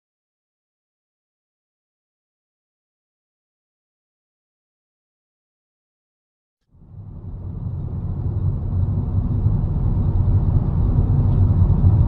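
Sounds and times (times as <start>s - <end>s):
car engine and road rumble: 6.7s - 12.0s.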